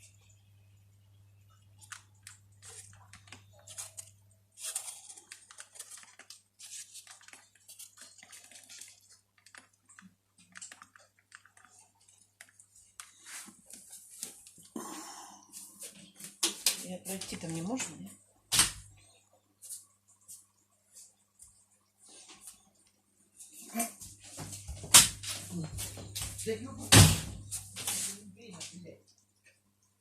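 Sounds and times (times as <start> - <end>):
wood crackling in fireplace: 0.0 - 14.8.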